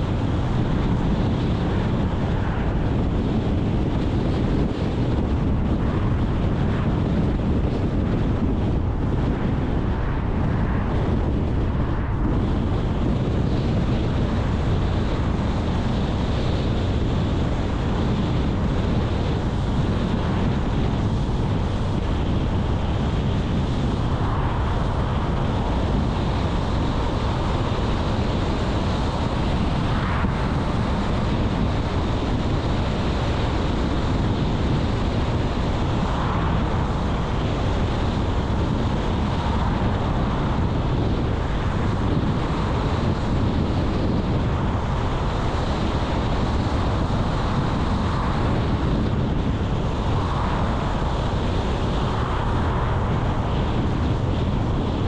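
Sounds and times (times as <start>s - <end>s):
car road and wind noise: 0.0s - 55.0s.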